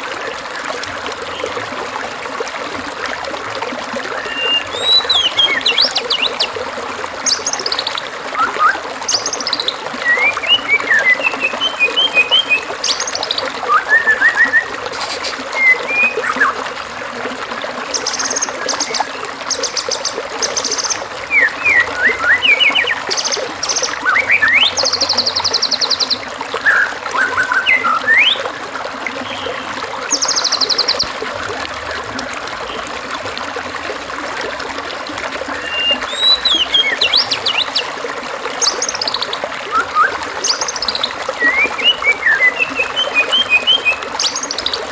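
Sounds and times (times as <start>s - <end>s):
trickling stream: 0.0s - 44.9s
songbird singing: 4.1s - 6.6s, 7.2s - 16.6s, 17.9s - 28.5s, 35.5s - 37.9s, 38.6s - 44.9s.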